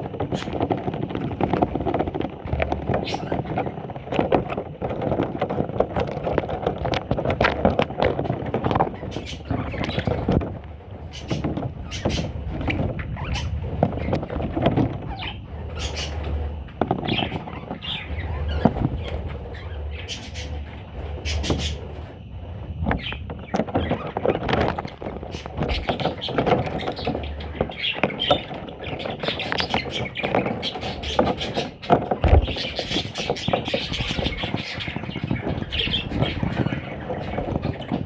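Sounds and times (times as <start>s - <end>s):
budgerigars chattering and chirping: 2.5s - 3.6s, 8.6s - 10.4s, 11.0s - 21.9s, 22.8s - 38.0s.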